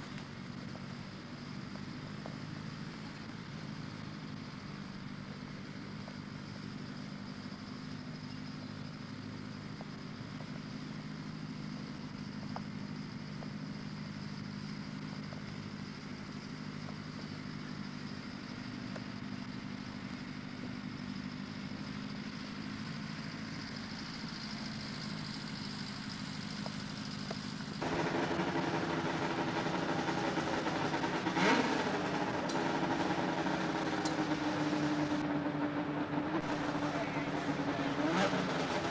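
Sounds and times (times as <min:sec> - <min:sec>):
snowmobile engines running: 0:00.0 - 0:38.9
sharp crack: 0:27.3 - 0:35.2.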